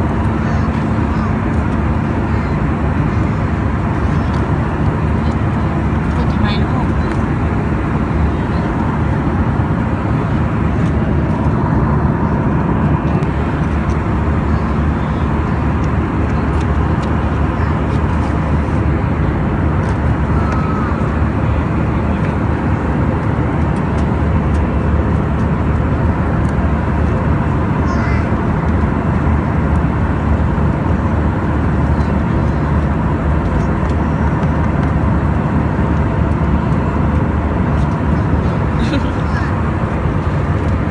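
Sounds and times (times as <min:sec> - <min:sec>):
airliner engine and airflow rumble: 0:00.0 - 0:40.9.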